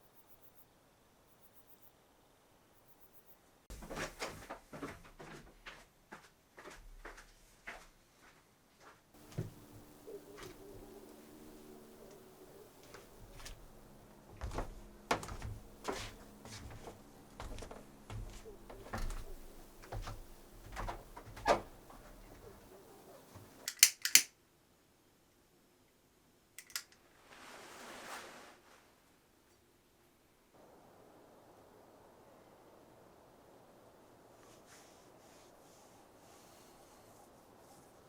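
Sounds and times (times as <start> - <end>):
faint steady hum: 9.2 - 27.7, 28.6 - 38.0
sharp clicks: 23.4 - 24.3, 26.6 - 27.0.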